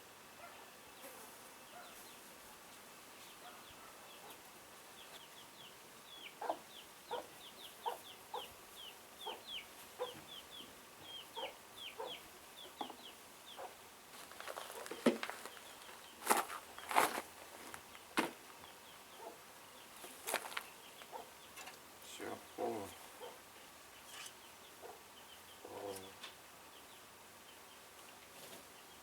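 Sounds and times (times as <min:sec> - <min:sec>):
chicks peeping: 0:03.2 - 0:13.8, 0:18.5 - 0:29.0
chickens clucking: 0:06.1 - 0:13.8, 0:18.5 - 0:26.8
scuffing noise: 0:14.1 - 0:18.4.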